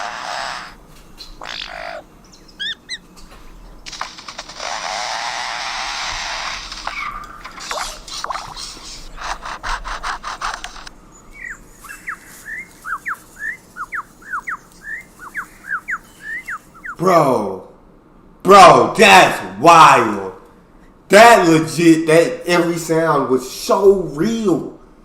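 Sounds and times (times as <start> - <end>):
lyrebird imitating chainsaw: 1.4 - 3.0, 4.0 - 17.0
falling whistled bird notes: 11.2 - 17.0.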